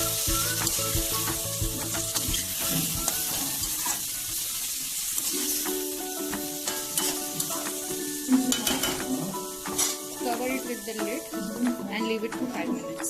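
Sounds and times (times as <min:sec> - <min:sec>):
chicken sizzling in oil: 0:00.0 - 0:12.8
background music held notes: 0:00.0 - 0:13.0
spoon scraping pan: 0:06.6 - 0:10.2.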